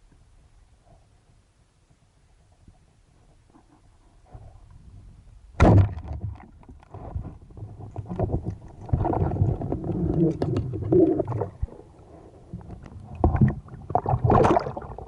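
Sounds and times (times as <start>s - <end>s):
water splashing and bubbling: 7.8s - 11.9s, 12.6s - 15.0s.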